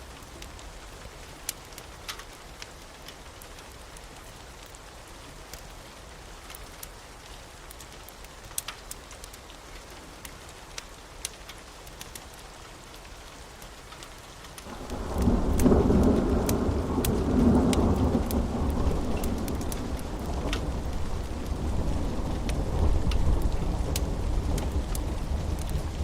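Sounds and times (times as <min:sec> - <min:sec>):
steady rain: 0:00.0 - 0:26.0
raindrops ticking sharply: 0:13.6 - 0:26.0
thunder rolling: 0:14.7 - 0:26.0.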